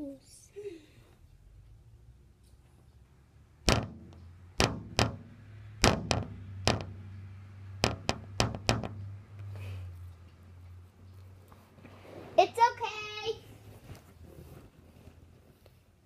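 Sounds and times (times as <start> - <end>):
sharp knocks: 3.6 - 9.4.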